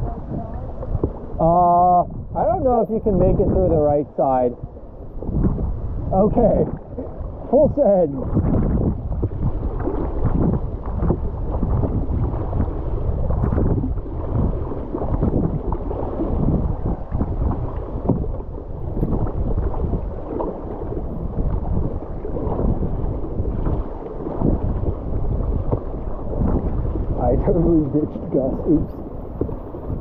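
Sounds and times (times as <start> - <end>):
water rushing and splashing: 0.0 - 30.0
wind rumble on microphone: 0.0 - 30.0.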